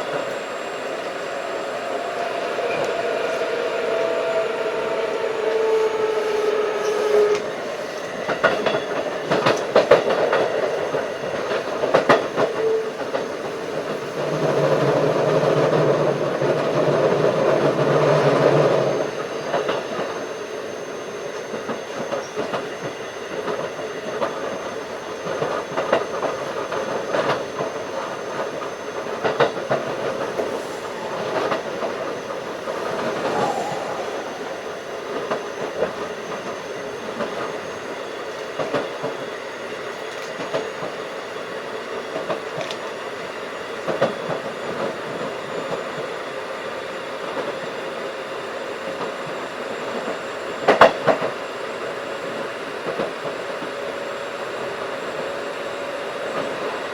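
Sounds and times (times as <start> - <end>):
train wheels rumbling on rail: 0.0 - 56.9
low hum: 30.6 - 36.2.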